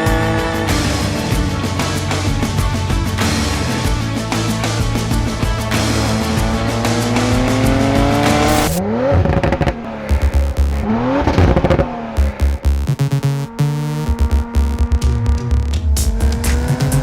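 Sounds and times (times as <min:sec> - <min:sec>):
music with thumping beat: 0:00.0 - 0:08.8, 0:10.1 - 0:17.0
car engine revving: 0:00.0 - 0:17.0.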